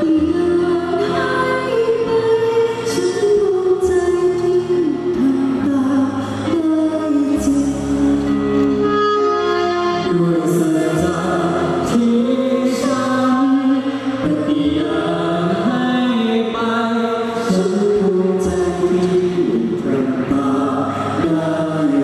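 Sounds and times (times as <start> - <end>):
choir singing in harmony: 10.1 - 22.0.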